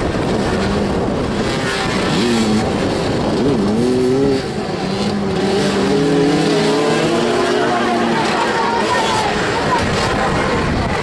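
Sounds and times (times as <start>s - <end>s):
motorcycle engines revving: 0.0s - 11.0s.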